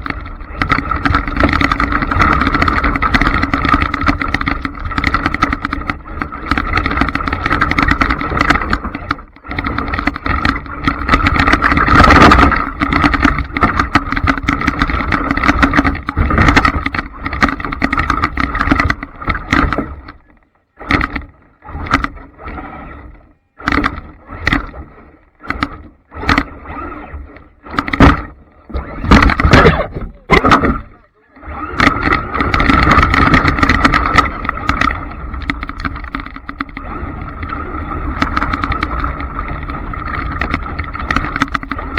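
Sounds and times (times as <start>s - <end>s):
rc trucks running: 0.0s - 41.9s
short throttle bursts: 28.8s - 31.8s.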